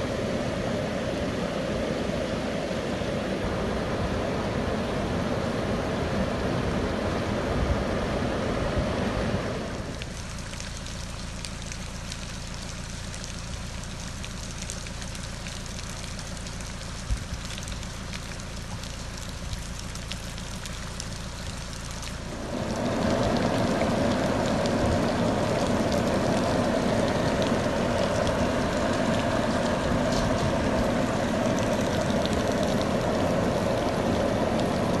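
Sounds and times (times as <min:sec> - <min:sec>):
floodwater running in street: 0:00.0 - 0:35.0
rain falling: 0:09.4 - 0:35.0
ticking raindrops: 0:09.7 - 0:35.0.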